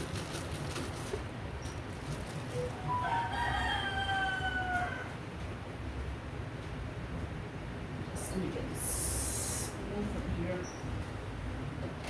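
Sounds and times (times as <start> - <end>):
rooster crowing: 2.7 - 5.2.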